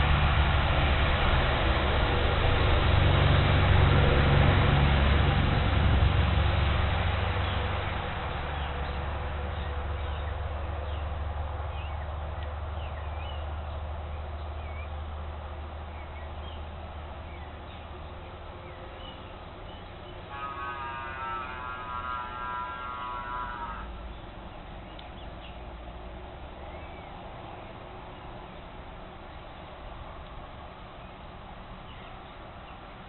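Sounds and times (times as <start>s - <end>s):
low steady rumble: 0.0s - 33.0s
nasal buzzy bird call: 20.3s - 24.1s.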